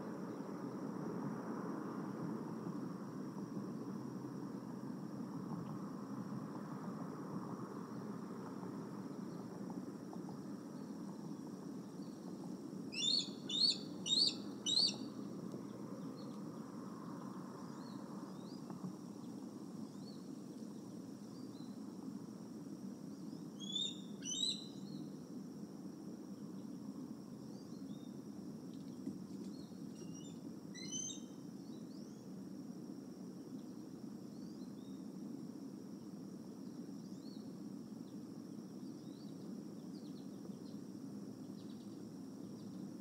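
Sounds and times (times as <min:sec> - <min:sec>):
low outdoor rumble: 0:00.1 - 0:23.4
birds chirping: 0:13.0 - 0:15.0.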